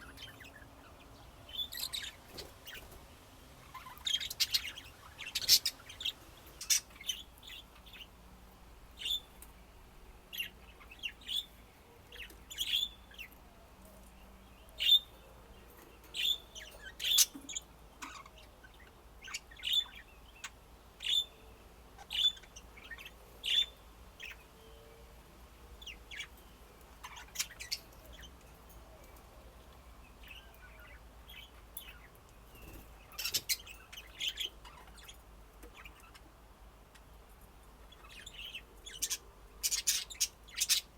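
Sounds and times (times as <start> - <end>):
budgerigars chirping: 0.0 - 3.0, 3.6 - 8.1, 9.0 - 9.3, 12.1 - 13.4, 16.1 - 21.4, 22.0 - 24.5, 27.0 - 28.4, 30.2 - 36.3, 37.8 - 40.9.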